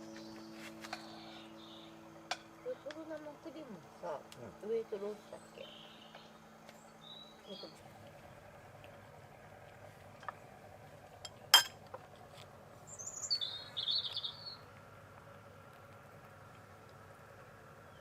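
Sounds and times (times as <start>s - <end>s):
songbird warbling: 0.0s - 4.2s, 4.8s - 7.9s, 12.9s - 14.6s.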